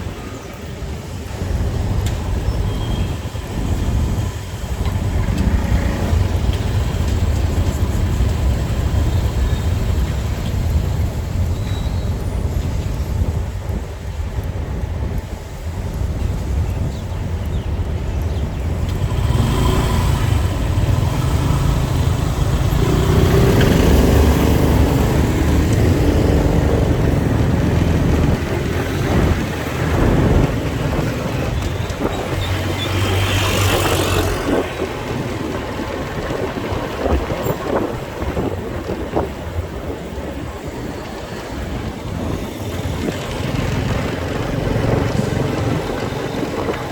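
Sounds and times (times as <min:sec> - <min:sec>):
road noise: 0:00.0 - 0:46.9
motorcycle engine running: 0:18.2 - 0:40.8, 0:41.8 - 0:46.9.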